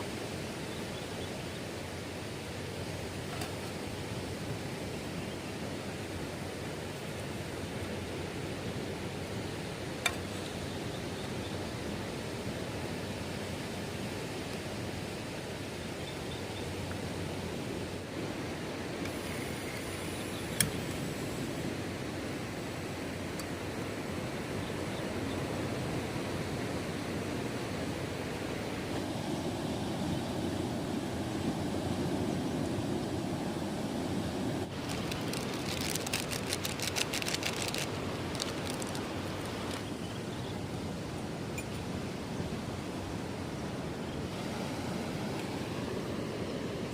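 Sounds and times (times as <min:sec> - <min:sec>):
low rush of noise: 0:00.0 - 0:46.9
sea surf: 0:00.0 - 0:46.9
wind: 0:00.0 - 0:46.9
small sharp ticks: 0:34.8 - 0:39.9.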